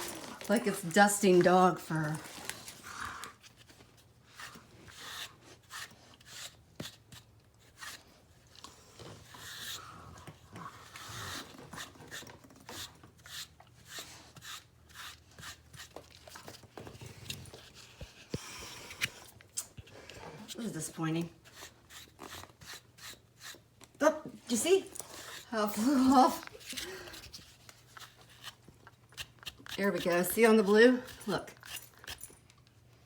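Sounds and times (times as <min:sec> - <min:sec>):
brush rasping through dog fur: 0:27.4 - 0:32.3.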